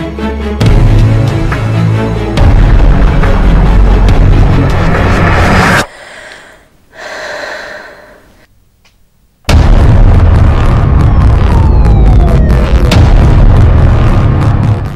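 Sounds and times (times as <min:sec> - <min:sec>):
dramatic orchestral score: 0:00.0 - 0:05.9
breathy swell: 0:04.4 - 0:08.5
heavy boom with deep rumble: 0:09.5 - 0:14.9.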